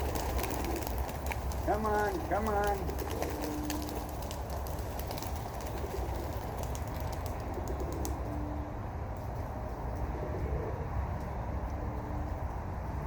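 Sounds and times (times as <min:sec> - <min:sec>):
pigeons cooing: 0:00.0 - 0:08.8, 0:09.8 - 0:11.2.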